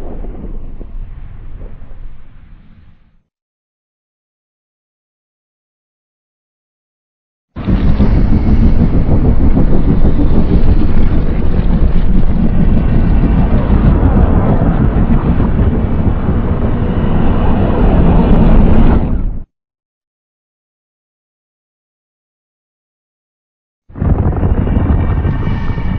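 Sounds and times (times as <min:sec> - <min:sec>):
deep monster rumbling: 0:00.0 - 0:03.2, 0:07.6 - 0:19.5, 0:23.9 - 0:25.9.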